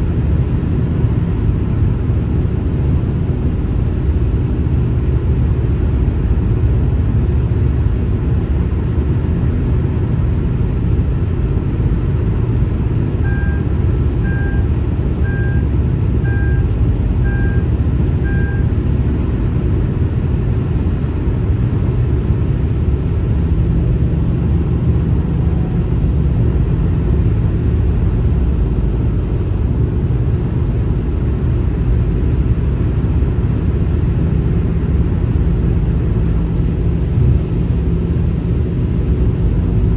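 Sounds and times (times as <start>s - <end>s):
highway road noise: 0.0s - 39.9s
short electronic beeps: 13.2s - 18.7s.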